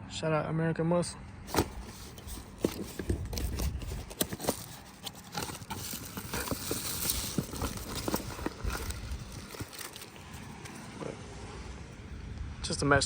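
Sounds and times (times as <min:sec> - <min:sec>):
packaging crinkling and rustling: 0:01.5 - 0:11.0.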